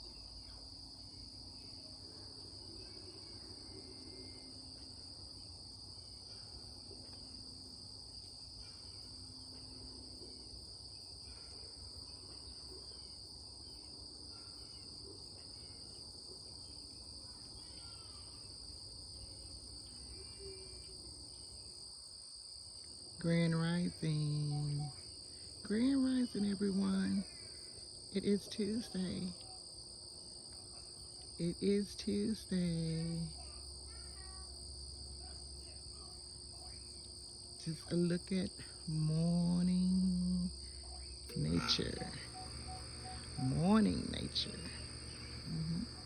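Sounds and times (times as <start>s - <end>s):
crickets chirping: 0.0s - 46.0s
faint bird calls: 40.0s - 46.0s.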